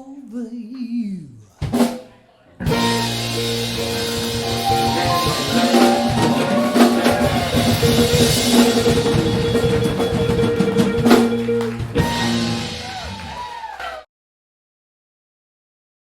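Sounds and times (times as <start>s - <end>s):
rock band playing: 2.6s - 13.5s
loud drum hit: 2.7s - 13.3s.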